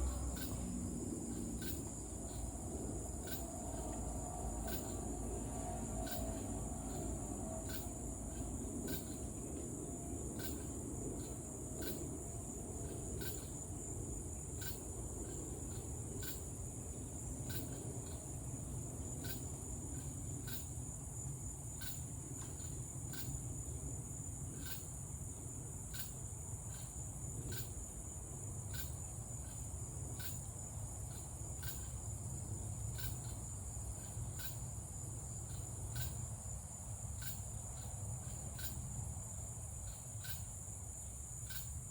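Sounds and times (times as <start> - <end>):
low background rumble: 0.0 - 21.5
insects trilling: 0.0 - 41.9
sharp insect chirp: 0.0 - 41.9.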